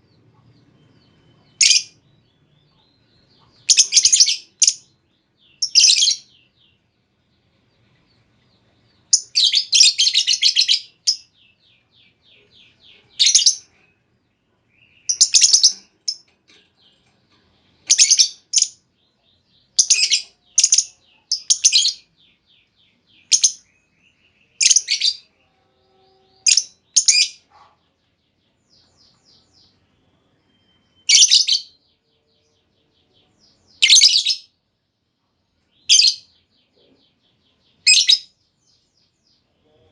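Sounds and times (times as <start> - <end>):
lovebird shrill chirping: 3.6 - 4.9, 5.6 - 6.4, 13.2 - 13.7, 14.9 - 16.2, 17.8 - 18.8, 19.7 - 22.0, 24.6 - 25.3, 26.4 - 27.4, 30.5 - 31.8.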